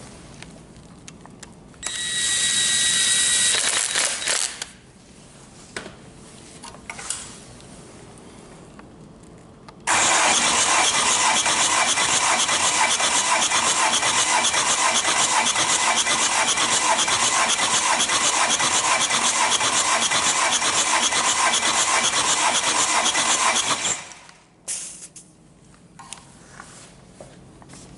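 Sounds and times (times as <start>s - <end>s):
starter motor cranking diesel engine: 9.9s - 24.3s.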